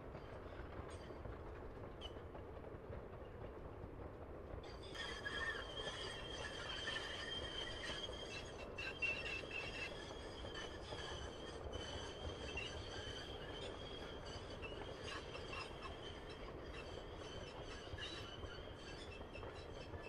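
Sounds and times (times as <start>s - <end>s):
train wagons rumbling past: 0.0s - 20.0s
high-pitched wheel squeal: 4.7s - 20.0s.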